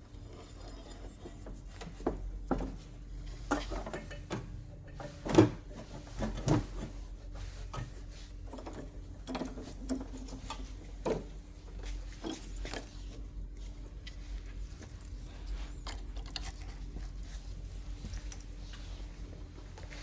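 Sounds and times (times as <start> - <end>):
steady low hum: 0.0 - 20.0
tools and metal parts knocking: 3.5 - 5.8, 8.5 - 11.3.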